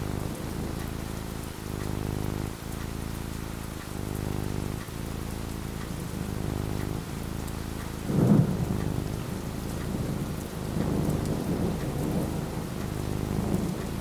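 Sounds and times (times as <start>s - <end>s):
steady rain falling: 0.0s - 14.0s
thunder rumbling: 8.0s - 14.0s.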